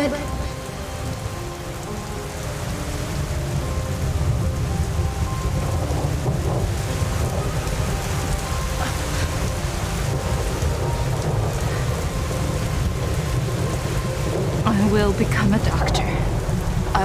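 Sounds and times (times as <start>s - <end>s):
heavy rain falling: 0.0s - 17.0s
deep continuous rumble: 3.7s - 17.0s.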